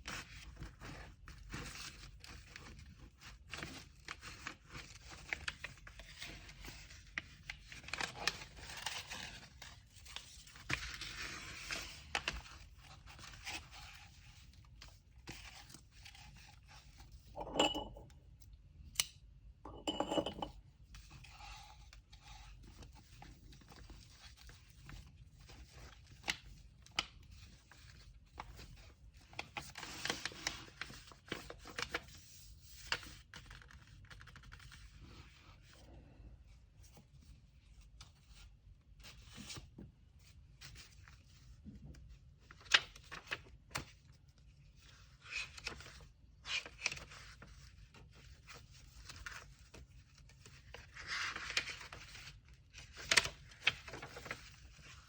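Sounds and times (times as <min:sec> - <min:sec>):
paper and tape rustling: 0:21.0 - 0:35.8, 0:42.4 - 0:55.0.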